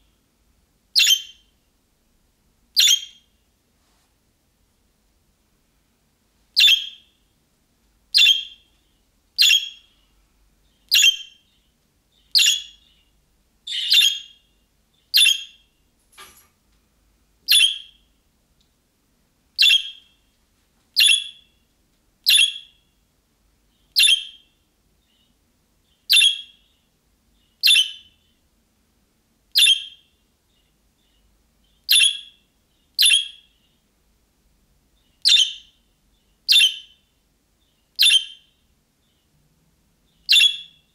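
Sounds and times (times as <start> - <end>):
budgerigar chirping: 1.0 - 1.5, 2.8 - 3.3, 6.6 - 7.1, 8.2 - 8.6, 9.4 - 9.9, 10.8 - 11.5, 12.2 - 13.0, 13.7 - 14.5, 15.1 - 15.7, 17.5 - 18.0, 19.6 - 20.2, 21.0 - 21.5, 22.2 - 22.8, 23.9 - 24.5, 26.0 - 26.8, 27.6 - 28.3, 29.6 - 30.1, 31.6 - 32.4, 33.0 - 33.7, 35.2 - 35.8, 36.5 - 37.1, 38.0 - 38.6, 40.2 - 40.8.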